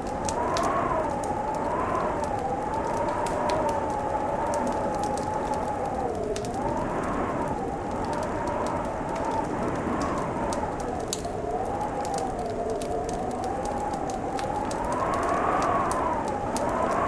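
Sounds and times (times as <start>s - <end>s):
fireplace crackling: 0.0s - 17.0s
whistling wind: 0.0s - 17.0s.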